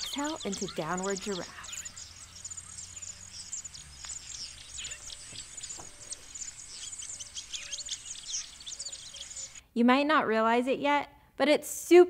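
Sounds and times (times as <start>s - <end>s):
birds chirping and twittering: 0.0s - 9.6s.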